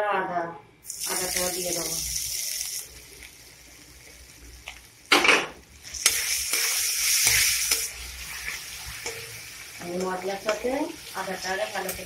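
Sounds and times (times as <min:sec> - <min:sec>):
spices sizzling in hot oil: 0:00.8 - 0:12.0
metal spatula stirring: 0:05.8 - 0:12.0.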